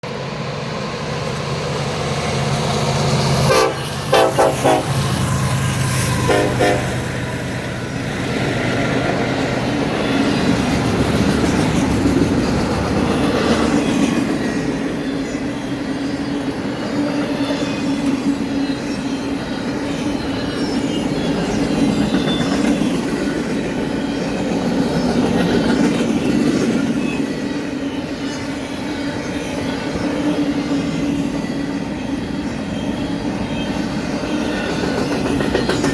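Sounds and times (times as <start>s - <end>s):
diesel locomotive engines running: 0.0s - 35.9s
train cars rumbling and clattering: 0.0s - 35.9s
train horn blasts: 3.4s - 5.5s, 6.1s - 7.3s.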